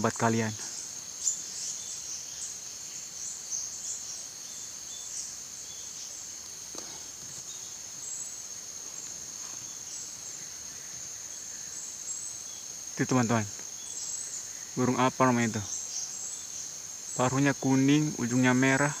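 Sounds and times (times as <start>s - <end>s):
chorus of forest insects: 0.0s - 19.0s.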